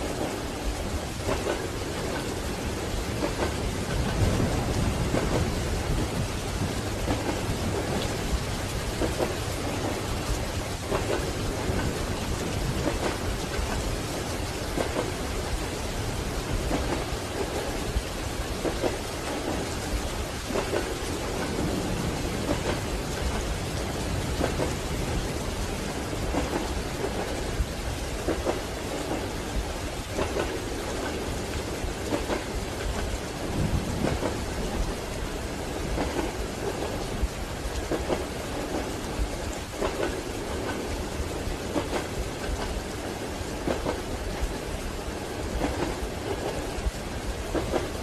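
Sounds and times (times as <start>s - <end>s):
low rumble of moving train: 0.0s - 48.0s
rain against a window: 0.0s - 48.0s
wheels knocking on rail joints: 20.4s - 27.4s.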